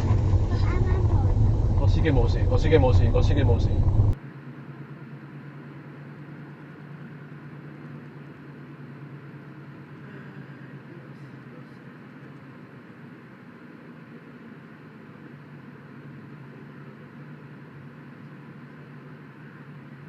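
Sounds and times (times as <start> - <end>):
car interior engine and tyre noise: 0.0 - 4.2.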